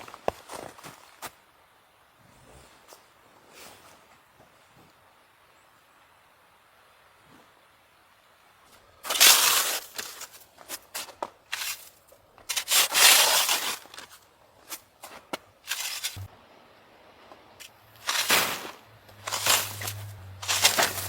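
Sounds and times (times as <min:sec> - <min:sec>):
crunching and rustling: 0:09.0 - 0:16.3, 0:17.6 - 0:21.0
scrapes and clicks: 0:15.7 - 0:16.3.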